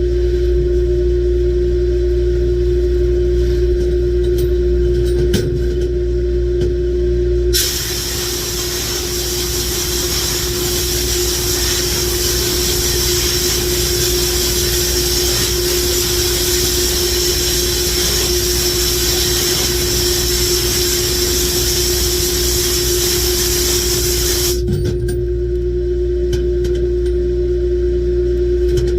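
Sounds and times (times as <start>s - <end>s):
machine hum: 0.0s - 28.9s
compressed air blasting hiss: 7.6s - 24.6s.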